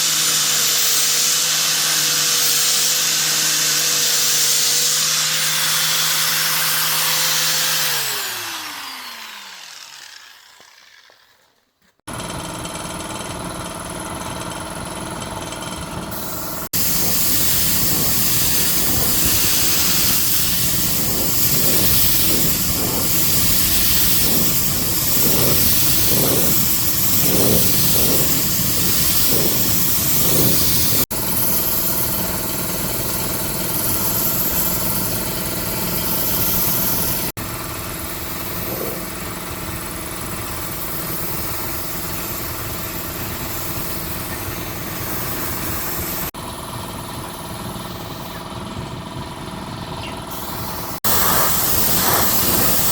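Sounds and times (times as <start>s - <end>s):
machine running noise: 0.0s - 11.4s, 12.1s - 52.9s
small electric motor whining: 0.0s - 11.9s, 16.2s - 46.3s, 50.4s - 52.9s
regular pulsing beat: 16.7s - 31.0s.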